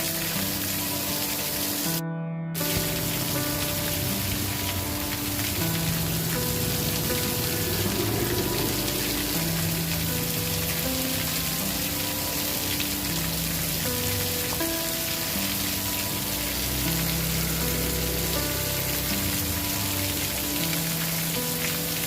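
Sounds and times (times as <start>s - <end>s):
rain hissing: 0.0s - 2.0s, 2.6s - 22.0s
soft held musical notes: 2.6s - 22.0s.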